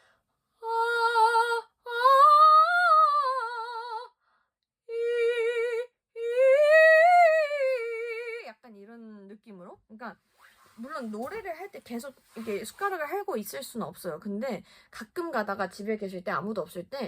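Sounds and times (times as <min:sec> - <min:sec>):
woman singing with vibrato: 0:00.6 - 0:04.2, 0:04.9 - 0:08.6.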